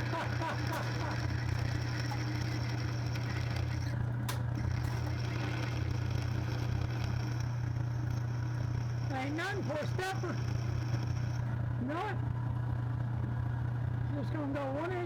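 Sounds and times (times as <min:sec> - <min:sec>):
electric motor humming: 0:00.0 - 0:11.7.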